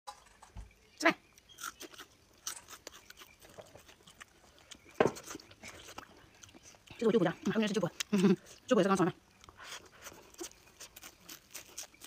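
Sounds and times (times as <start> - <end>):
chewing crunchy food: 1.2 - 12.0.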